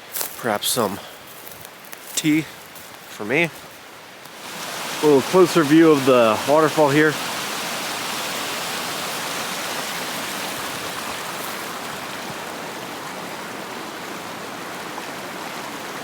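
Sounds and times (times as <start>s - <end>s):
waterfall rushing and splashing: 4.3s - 16.0s.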